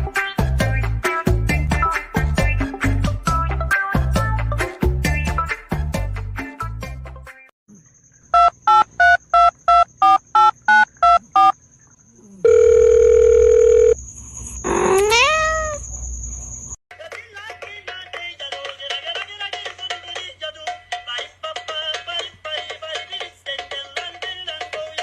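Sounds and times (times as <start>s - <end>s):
telephone keypad beeps: 8.4s - 11.5s
dial tone: 12.4s - 14.0s
cat meowing: 14.7s - 15.8s.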